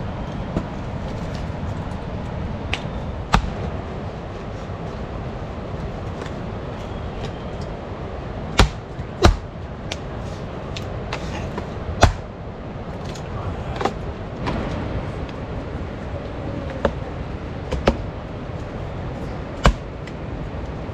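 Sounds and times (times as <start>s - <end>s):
low rumbling noise: 0.0s - 20.9s
sharp knocks: 8.6s - 9.5s.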